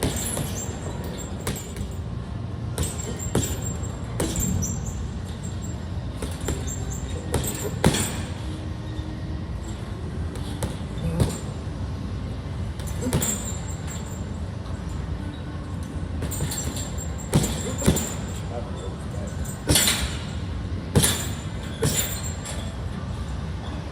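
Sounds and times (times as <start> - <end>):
punches landing thuds: 0.0 - 2.0, 2.8 - 4.7, 6.2 - 8.3, 10.4 - 11.6, 12.8 - 14.0, 16.2 - 18.4, 20.9 - 22.3.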